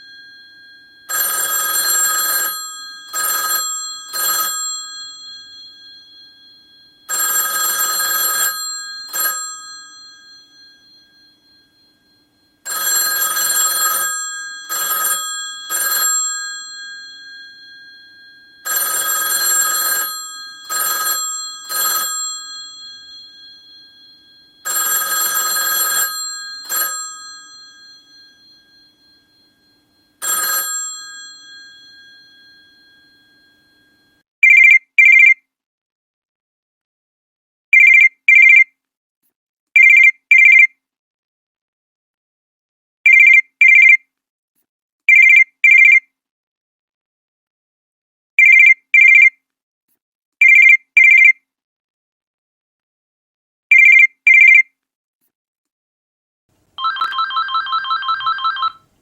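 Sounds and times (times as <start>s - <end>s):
mechanical telephone bell ringing: 0.0s - 34.2s, 56.8s - 59.0s
electronic phone ring beeps: 0.0s - 35.4s, 45.1s - 46.0s, 53.7s - 54.6s, 56.8s - 59.0s.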